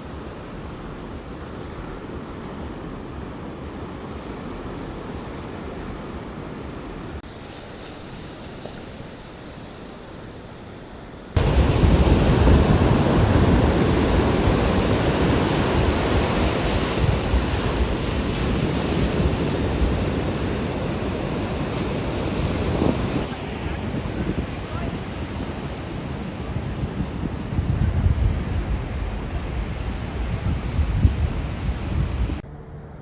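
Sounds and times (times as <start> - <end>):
ocean surf: 0.0 - 32.4
wind rumbling on microphone: 11.4 - 33.0.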